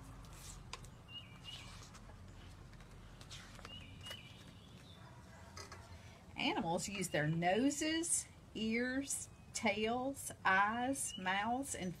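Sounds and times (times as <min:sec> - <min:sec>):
soft clicks and rustles: 0:00.0 - 0:06.0
bird chirps: 0:00.9 - 0:01.8, 0:03.6 - 0:05.1.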